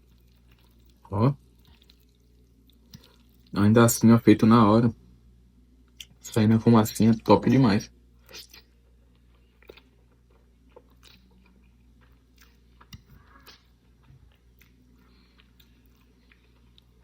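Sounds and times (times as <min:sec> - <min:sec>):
close-up chewing and crunching: 0:00.0 - 0:03.6, 0:08.2 - 0:17.0.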